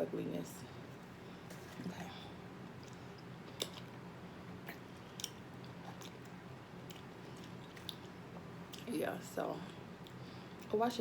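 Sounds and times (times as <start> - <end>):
low steady hum: 0.0 - 11.0
wet eating clicks and smacks: 2.7 - 4.0, 4.6 - 8.9.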